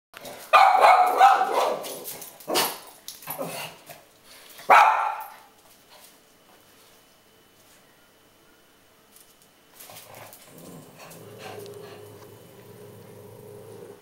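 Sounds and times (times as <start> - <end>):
dogs barking: 0.5 - 2.7, 4.7 - 5.4.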